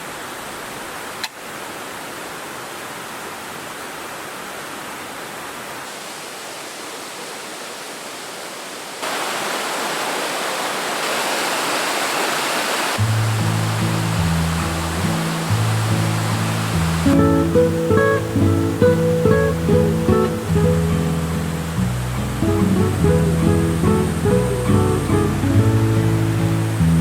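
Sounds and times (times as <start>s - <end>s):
water rushing over rocks: 0.0s - 27.0s
acoustic guitar music: 13.0s - 27.0s.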